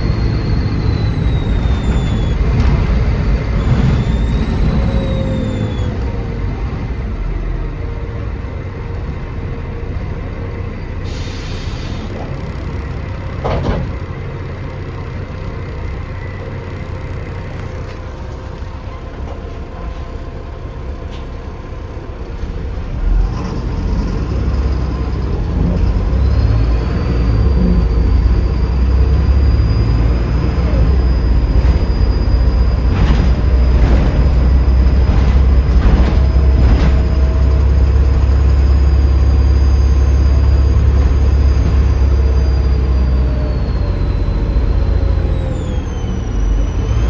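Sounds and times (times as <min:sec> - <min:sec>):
turbo whistle: 0:00.0 - 0:03.0, 0:03.6 - 0:06.0
bus diesel engine rumbling: 0:00.0 - 0:47.0
air hiss: 0:11.0 - 0:12.1
clunk: 0:13.4 - 0:14.2, 0:31.0 - 0:38.6.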